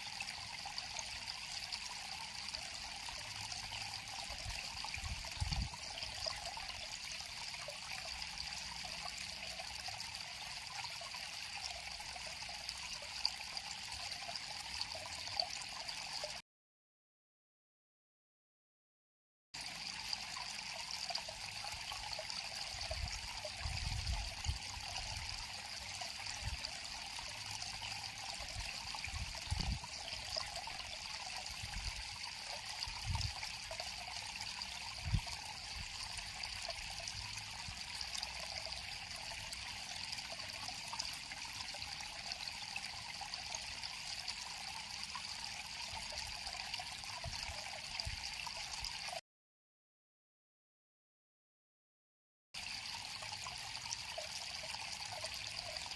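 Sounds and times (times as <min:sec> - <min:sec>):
river water flowing: 0:19.6 - 0:49.1, 0:52.6 - 0:55.9.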